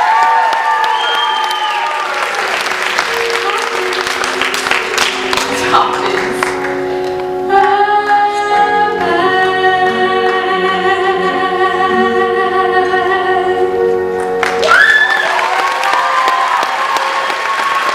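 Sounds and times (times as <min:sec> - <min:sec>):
audience applause: 0:00.0 - 0:06.8, 0:14.4 - 0:17.9.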